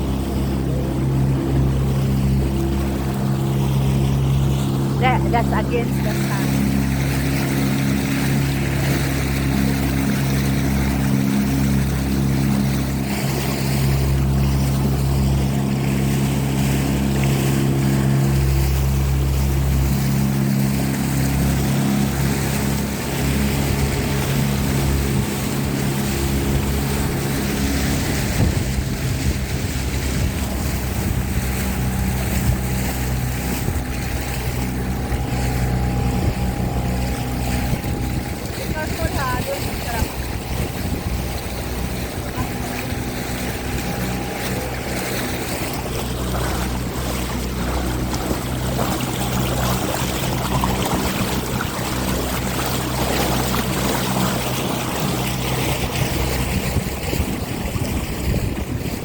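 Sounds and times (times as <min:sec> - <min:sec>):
motorboat engine droning: 0:00.0 - 0:59.0
water noise: 0:00.0 - 0:59.0
wind noise on microphone: 0:26.4 - 0:59.0.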